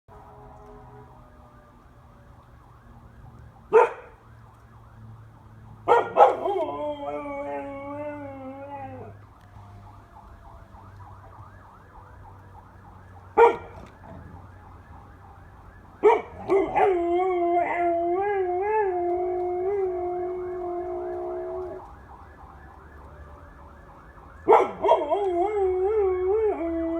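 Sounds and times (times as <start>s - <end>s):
fire truck siren yelping: 0.1s - 26.9s
dog barking: 3.7s - 4.1s, 5.9s - 6.6s, 13.4s - 13.8s, 16.0s - 16.9s, 24.5s - 25.0s
dog howling: 5.9s - 9.2s.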